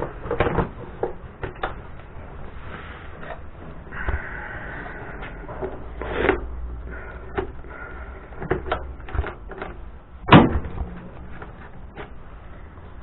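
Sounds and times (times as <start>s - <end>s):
loud thump: 10.3s - 10.8s.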